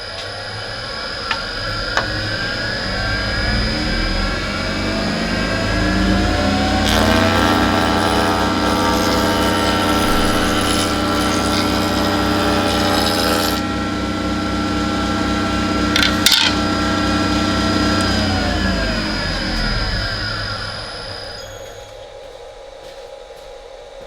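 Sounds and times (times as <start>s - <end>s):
shaper motor running: 0.8s - 22.0s
cutter cutting wood: 4.4s - 22.0s.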